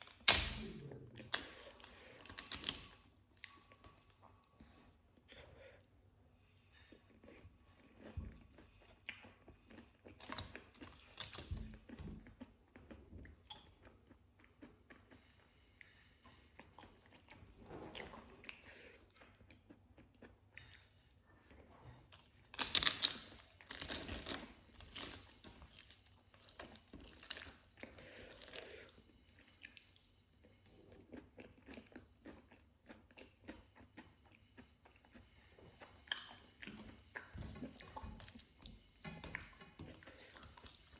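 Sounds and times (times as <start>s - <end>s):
wet chewing and crunching: 0.0s - 5.5s, 6.7s - 40.9s.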